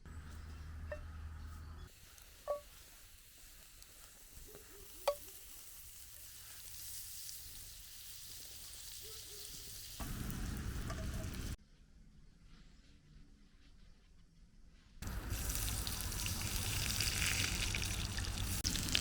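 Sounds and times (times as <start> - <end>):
food sizzling in a pan: 1.9 - 11.6, 15.0 - 19.0.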